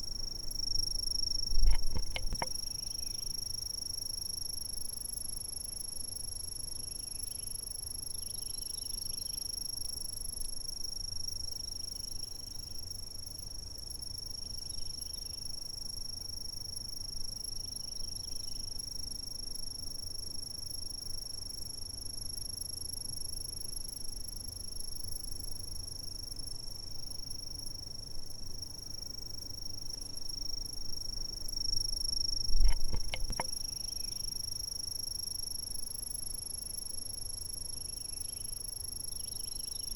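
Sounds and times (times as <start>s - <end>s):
insects trilling: 0.0s - 5.6s, 6.7s - 10.4s, 11.2s - 39.9s.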